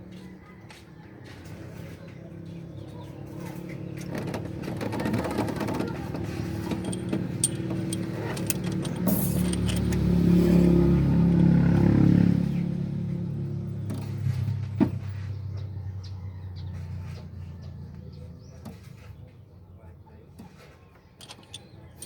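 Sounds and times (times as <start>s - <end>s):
vehicle engine running: 2.1s - 15.8s.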